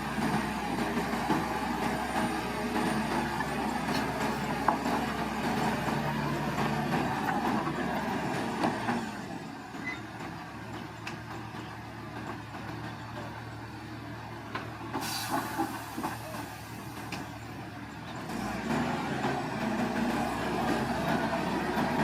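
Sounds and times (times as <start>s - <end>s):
bulldozer diesel engine running: 0.0s - 22.0s
short hiss: 15.0s - 16.2s.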